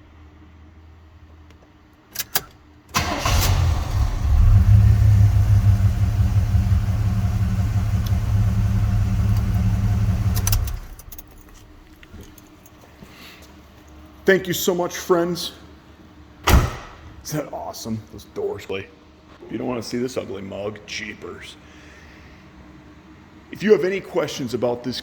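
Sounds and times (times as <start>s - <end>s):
car engine idling: 3.0s - 12.6s.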